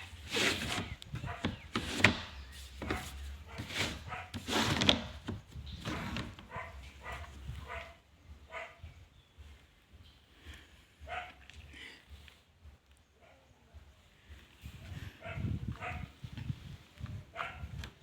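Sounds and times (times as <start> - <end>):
dog barking and yelping: 1.2 - 1.6, 2.9 - 4.4, 6.5 - 8.9, 11.0 - 11.4, 15.2 - 16.1.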